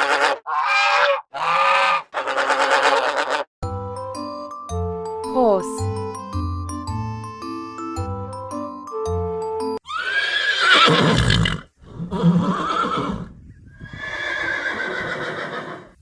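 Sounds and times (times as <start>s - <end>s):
glockenspiel-like children's music: 3.6s - 9.8s
horse neighing: 9.8s - 16.0s.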